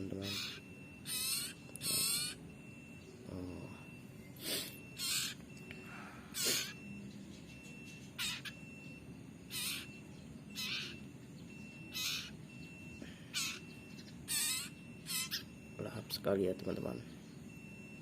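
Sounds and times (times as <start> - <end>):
nestling rasping begging calls: 0.0 - 2.6, 4.4 - 5.5, 6.2 - 15.8.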